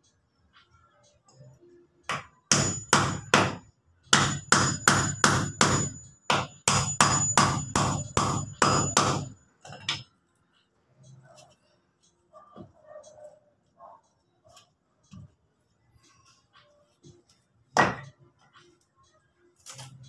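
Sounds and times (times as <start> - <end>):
hammer driving nails into wood: 4.2 - 9.3.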